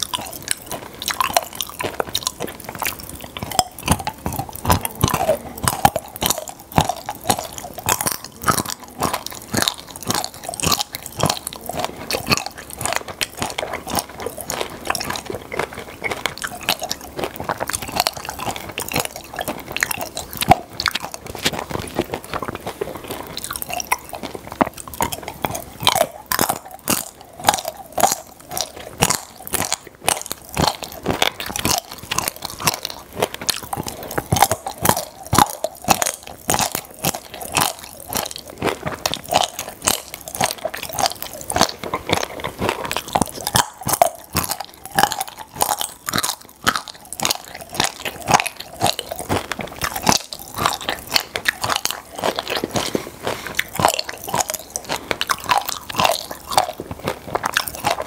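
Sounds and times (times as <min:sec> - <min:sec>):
popping candy crackling: 0:00.0 - 0:58.0.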